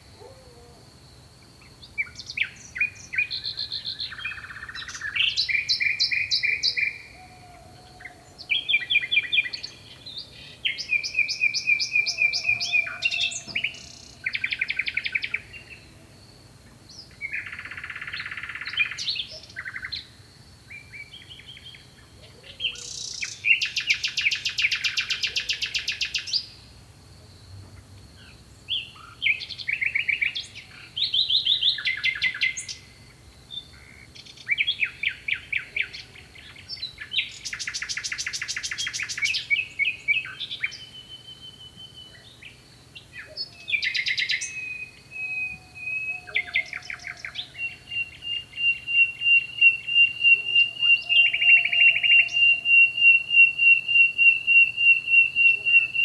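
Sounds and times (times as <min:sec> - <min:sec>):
songbirds trilling and chirping: 0:00.0 - 0:56.0
long pulsing whistle: 0:48.0 - 0:56.0.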